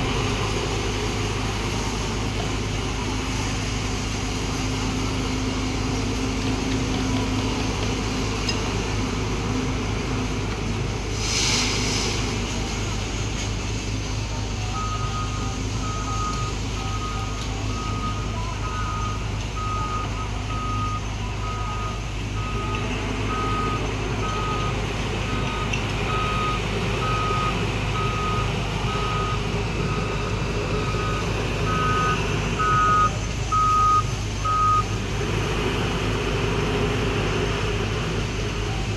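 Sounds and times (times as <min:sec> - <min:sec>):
diesel engine rumbling: 0:00.0 - 0:38.9
short hiss: 0:11.1 - 0:12.4
reversing alarm beeping: 0:14.6 - 0:34.9.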